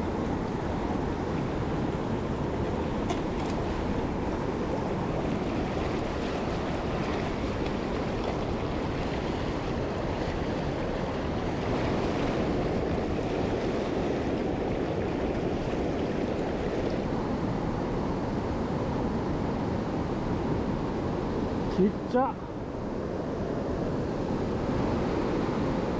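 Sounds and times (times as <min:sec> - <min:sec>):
stream water rushing over rocks: 0:00.0 - 0:17.1.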